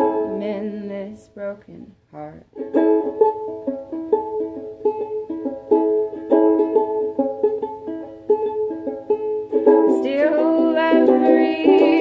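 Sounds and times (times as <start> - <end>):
person singing: 0.0 - 1.2, 9.6 - 12.0
ukulele strumming: 0.0 - 1.2, 2.4 - 12.0.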